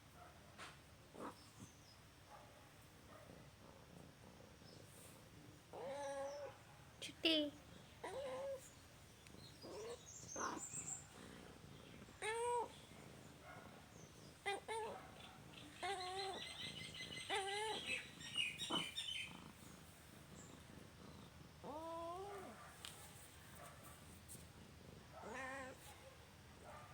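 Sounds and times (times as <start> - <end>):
birds chirping: 8.6 - 22.7
cat meowing: 25.2 - 25.8.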